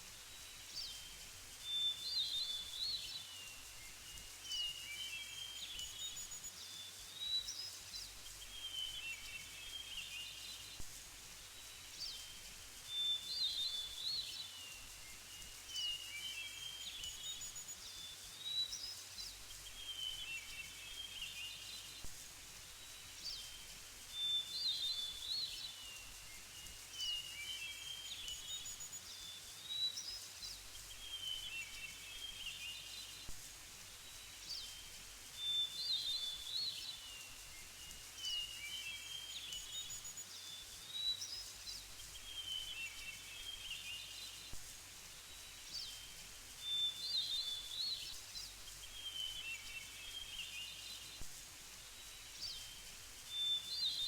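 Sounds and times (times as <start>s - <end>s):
faint hiss: 0.0s - 54.0s
small birds chirping: 0.1s - 54.0s.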